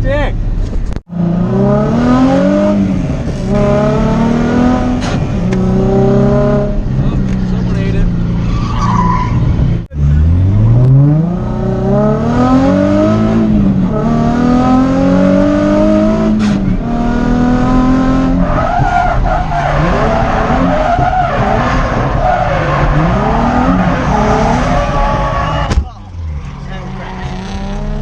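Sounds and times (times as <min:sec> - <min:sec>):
car engine accelerating: 0:00.6 - 0:28.0.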